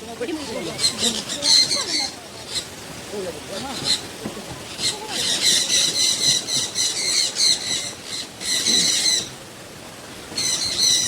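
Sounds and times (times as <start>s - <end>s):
small birds chattering squawks: 0.3s - 2.8s, 3.5s - 9.3s.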